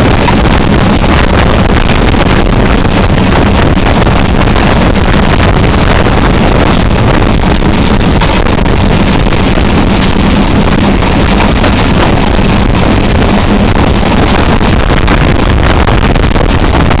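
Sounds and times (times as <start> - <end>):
low hum: 0.0 - 17.0
train rushing at full speed: 0.0 - 17.0
wind buffeting microphone: 0.0 - 17.0.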